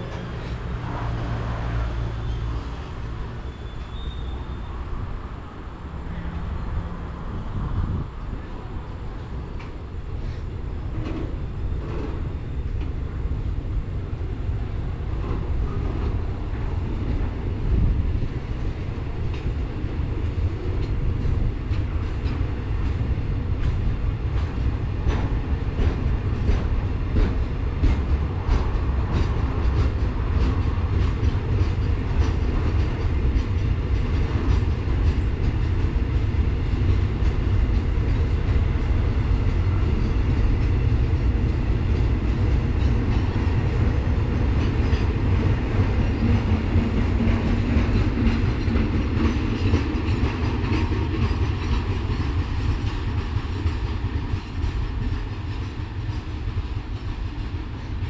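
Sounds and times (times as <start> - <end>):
freight train rumbling past: 0.0 - 58.0
wheels clacking over rail joints: 15.0 - 58.0.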